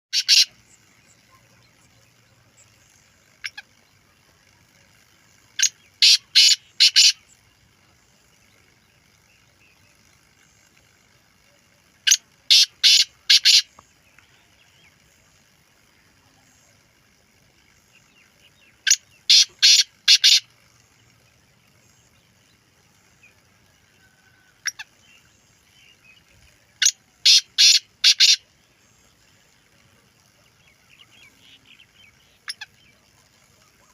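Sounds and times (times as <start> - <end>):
bird harsh rapid calls: 0.1 - 4.3, 5.4 - 7.6, 12.0 - 13.8, 17.8 - 21.1, 24.4 - 26.0, 26.8 - 29.6, 30.2 - 33.9.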